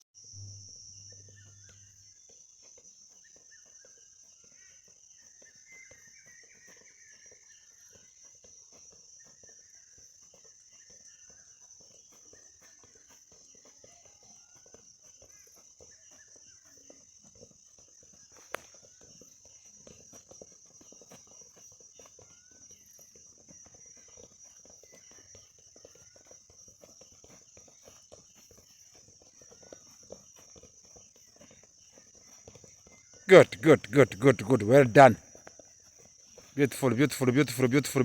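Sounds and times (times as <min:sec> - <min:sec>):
faint distant voices: 0:33.3 - 0:35.2, 0:36.4 - 0:38.0.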